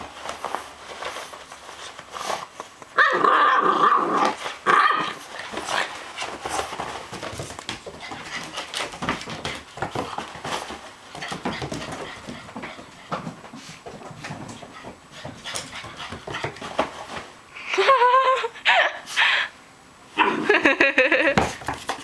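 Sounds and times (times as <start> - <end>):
puppy growling and barking: 3.0 - 5.8.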